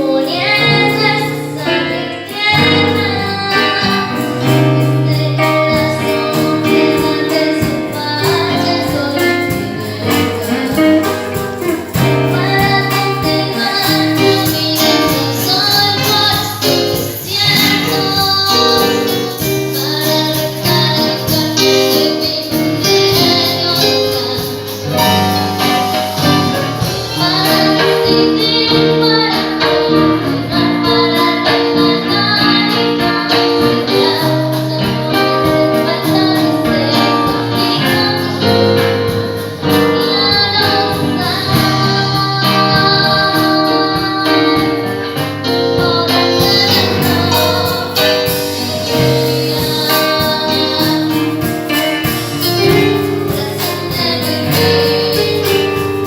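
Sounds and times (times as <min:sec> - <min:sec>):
girl singing: 0:00.0 - 0:56.0
instrumental accompaniment: 0:00.0 - 0:56.0.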